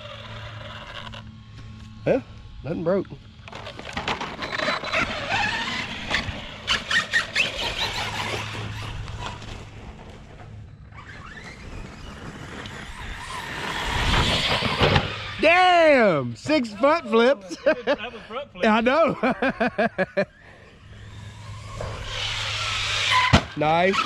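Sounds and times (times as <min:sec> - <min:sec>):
toy truck motor whining: 0:00.0 - 0:15.5, 0:20.2 - 0:24.0
tyres scrabbling: 0:03.5 - 0:15.4.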